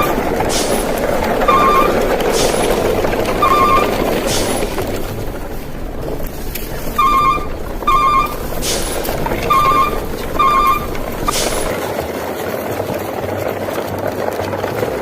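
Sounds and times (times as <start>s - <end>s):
high electronic beeps: 0.0s - 11.8s
low engine rumble: 0.0s - 15.0s.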